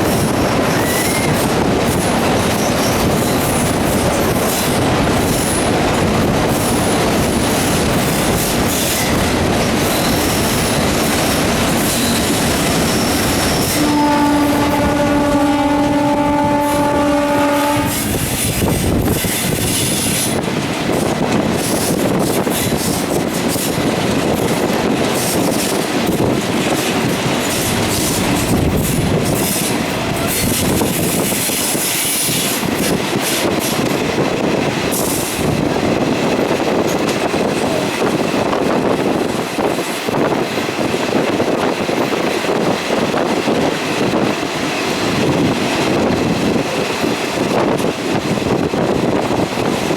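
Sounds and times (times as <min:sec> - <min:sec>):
train wheels clattering: 0:00.0 - 0:49.9
train horn blast: 0:13.3 - 0:18.3.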